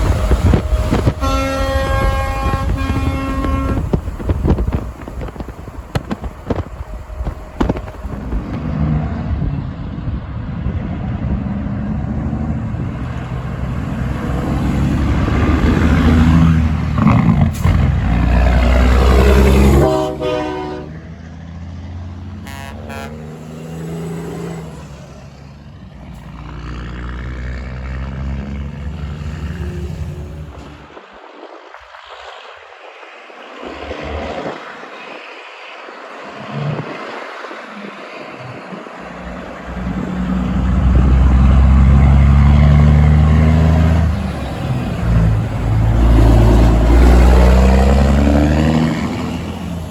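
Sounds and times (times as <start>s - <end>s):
heavy truck passing: 0.0s - 49.9s
quieter vehicle passing: 10.3s - 31.0s, 37.6s - 49.9s.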